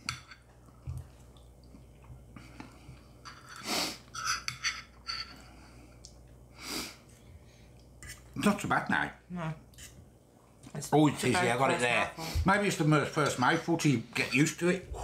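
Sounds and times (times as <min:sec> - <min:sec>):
man chewing food: 0:00.0 - 0:04.2, 0:04.9 - 0:08.4.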